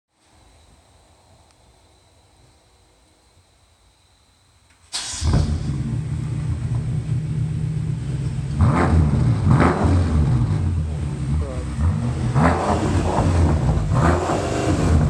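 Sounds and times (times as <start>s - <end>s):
car engine idling and revving: 5.0s - 15.0s.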